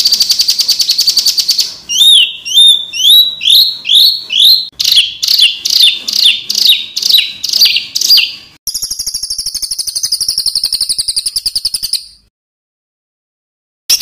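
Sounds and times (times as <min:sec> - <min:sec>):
fast buzzy bird trill: 0:00.0 - 0:12.3
high downward-sweeping bird note: 0:01.9 - 0:09.3.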